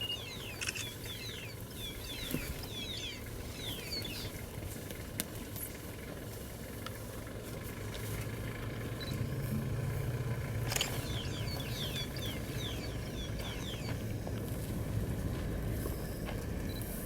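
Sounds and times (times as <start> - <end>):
bird chirping: 0.0 - 4.4, 10.7 - 14.1
vehicle engine idling: 0.0 - 17.0.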